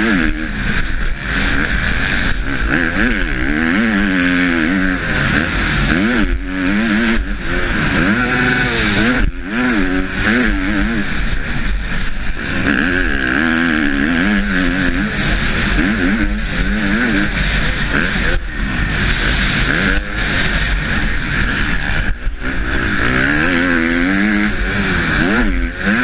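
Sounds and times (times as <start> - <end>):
motocross bike engine revving: 0.0 - 26.0.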